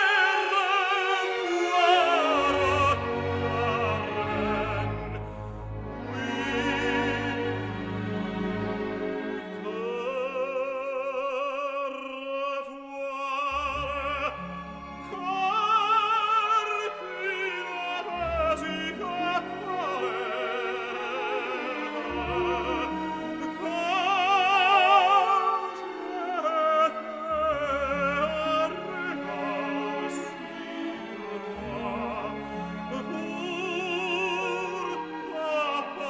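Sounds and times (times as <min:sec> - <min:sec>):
orchestral accompaniment: 0:00.0 - 0:36.0.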